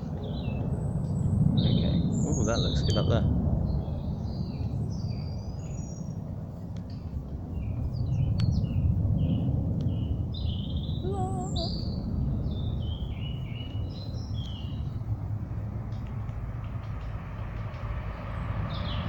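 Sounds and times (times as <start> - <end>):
small birds singing: 0.0 - 19.0
steady low rumble: 0.0 - 19.0.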